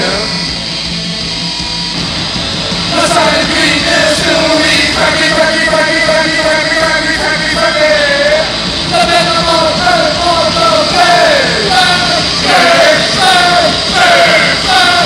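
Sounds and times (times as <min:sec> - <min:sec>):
live rock band playing: 0:00.0 - 0:15.0
person singing long notes: 0:02.9 - 0:15.0.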